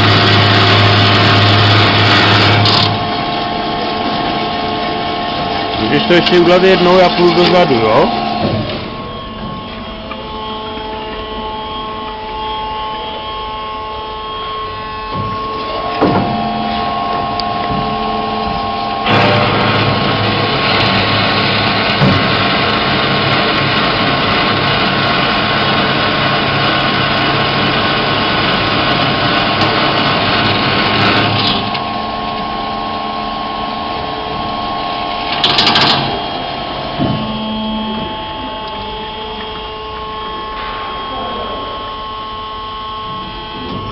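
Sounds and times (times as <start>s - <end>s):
band saw running: 0.0s - 43.9s.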